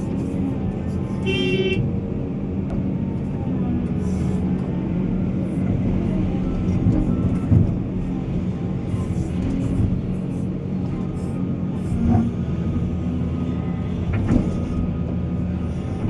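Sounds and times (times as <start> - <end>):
heavy machine engine rumbling: 0.0 - 16.0
short horn toot: 1.2 - 1.8.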